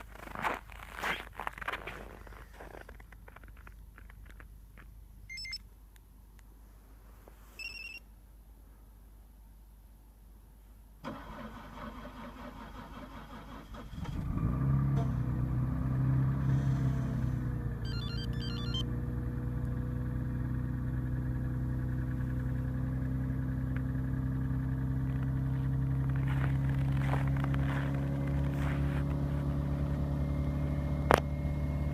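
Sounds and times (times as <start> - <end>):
short electronic beeping: 5.3 - 5.6, 7.6 - 8.0, 17.8 - 18.9
car engine cold idling: 11.0 - 31.9.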